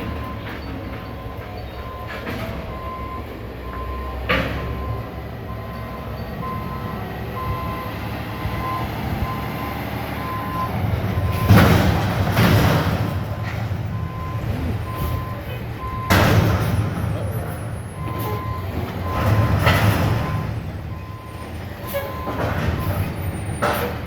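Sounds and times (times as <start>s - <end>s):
truck engine running: 0.0s - 24.0s
loud clanking crash: 11.1s - 20.9s.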